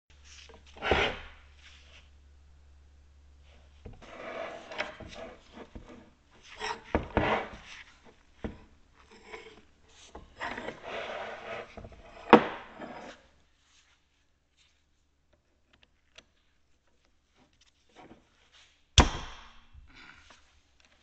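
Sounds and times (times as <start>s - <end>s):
metal press scraping on wooden bench: 0.6s - 1.4s, 3.9s - 13.2s
sharp knock: 19.0s - 19.7s.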